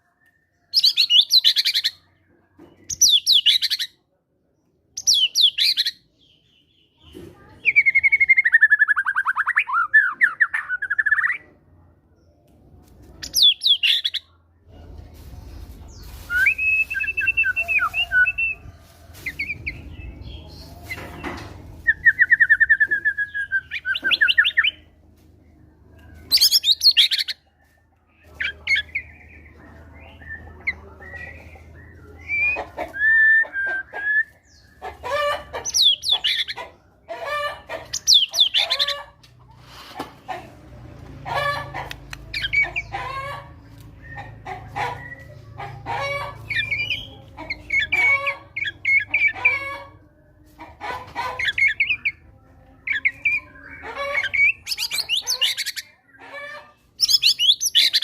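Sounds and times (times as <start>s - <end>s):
songbird whistles and trills: 16.2s - 18.6s.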